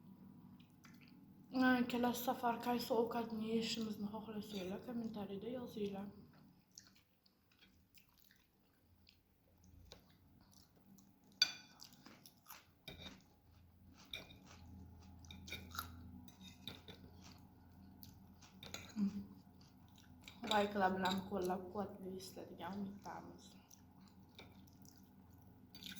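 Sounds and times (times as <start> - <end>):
chewing and slurping noodles: 6.3 - 20.4, 23.5 - 25.9.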